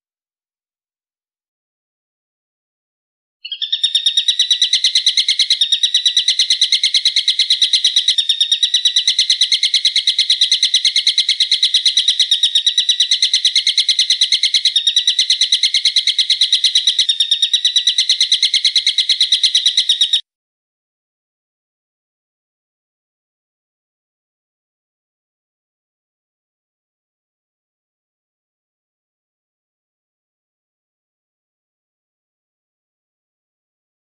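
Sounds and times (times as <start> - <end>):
bird trilling rapidly: 3.4 - 20.2.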